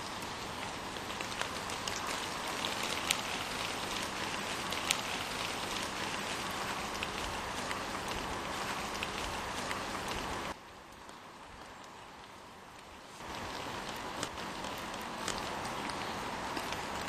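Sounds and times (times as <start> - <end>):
sharp taps of raindrops: 0.0 - 17.0
steady rain hiss: 0.0 - 17.0.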